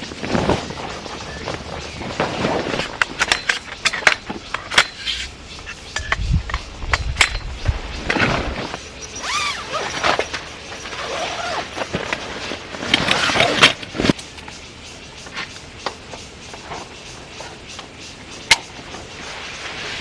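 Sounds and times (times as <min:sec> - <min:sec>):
tent gear clicking and clinking: 0:00.0 - 0:14.5.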